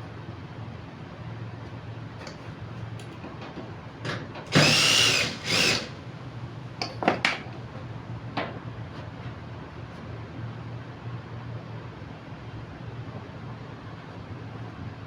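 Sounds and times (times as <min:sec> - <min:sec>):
small power tool motor whining: 0:04.5 - 0:06.0.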